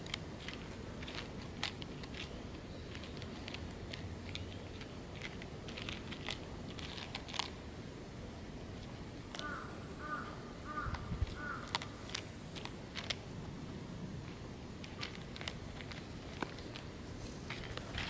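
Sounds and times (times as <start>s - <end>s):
cat chewing crunchy food: 0.0s - 7.6s, 11.6s - 13.2s, 14.2s - 18.0s
bird calling: 9.4s - 12.0s.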